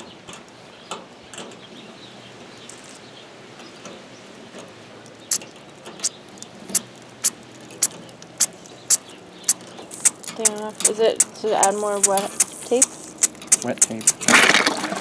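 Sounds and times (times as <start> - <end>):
low steady background noise: 0.0 - 15.0
sharp clicks: 5.1 - 14.5.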